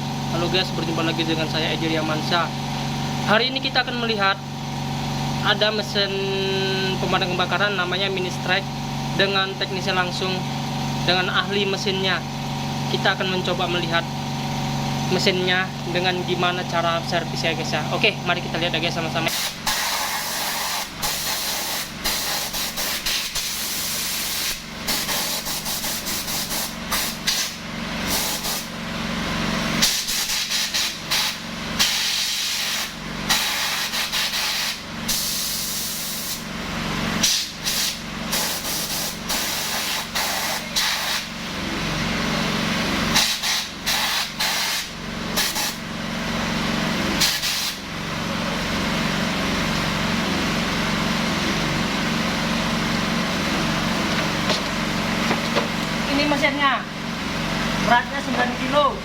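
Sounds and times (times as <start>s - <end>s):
small engine running: 0.0s - 59.0s
high-pressure water jet hissing: 19.3s - 28.7s, 29.8s - 36.4s, 37.2s - 41.3s, 43.1s - 45.8s, 47.2s - 47.8s.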